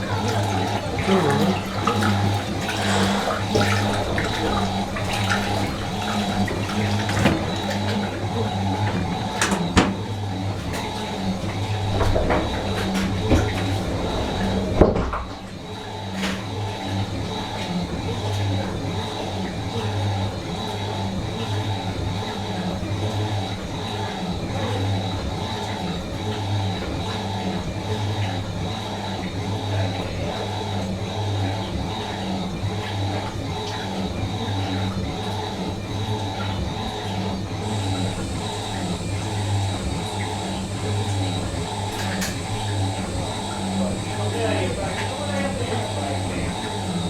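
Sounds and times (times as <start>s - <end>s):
washing machine motor hum: 0.0s - 47.0s
faint high whine: 37.6s - 47.0s.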